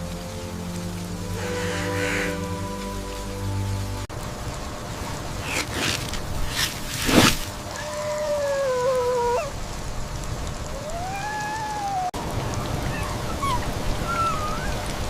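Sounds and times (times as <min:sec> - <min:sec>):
steady rain: 0:00.0 - 0:15.0
dog whining: 0:07.8 - 0:09.6, 0:10.7 - 0:14.9.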